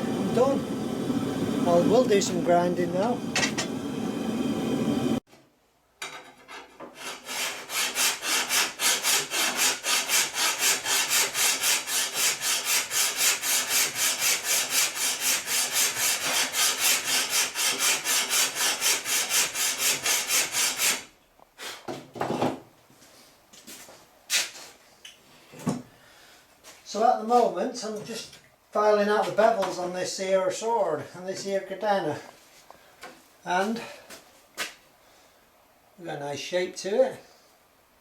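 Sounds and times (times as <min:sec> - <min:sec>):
file rasping on steel: 0:06.3 - 0:21.1.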